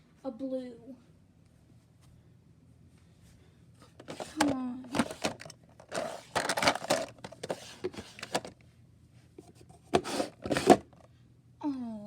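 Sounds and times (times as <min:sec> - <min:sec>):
rustling and handling noises: 0:03.1 - 0:11.1.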